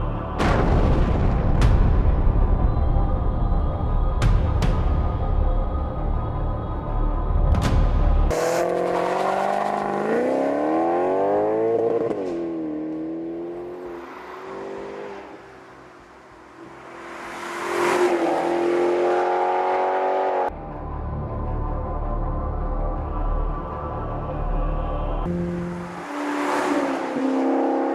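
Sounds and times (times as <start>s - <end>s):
sports car engine accelerating: 8.3s - 15.6s, 16.6s - 20.5s.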